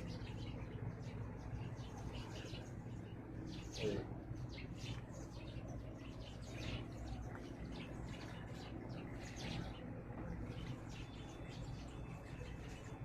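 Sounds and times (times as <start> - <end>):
low hum: 0.0 - 13.0
sparrows chirping: 0.0 - 13.0.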